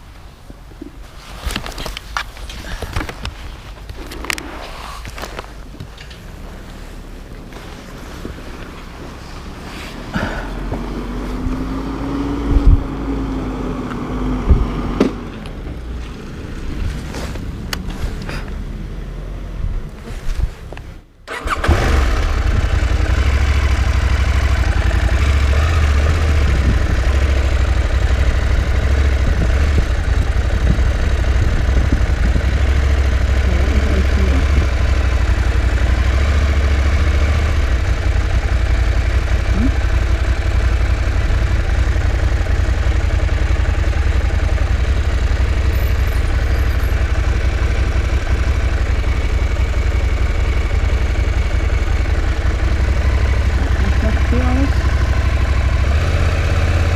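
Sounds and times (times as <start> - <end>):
motorcycle engine idling: 21.3 - 56.9.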